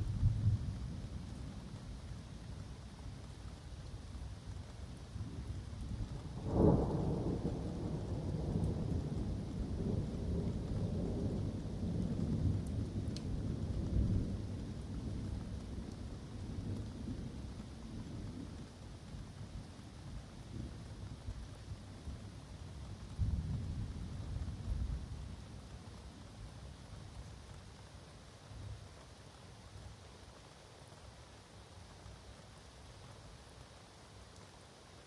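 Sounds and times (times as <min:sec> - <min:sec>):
rain falling in woodland: 0:00.0 - 0:35.0
thunder crack and rumble: 0:06.3 - 0:17.5.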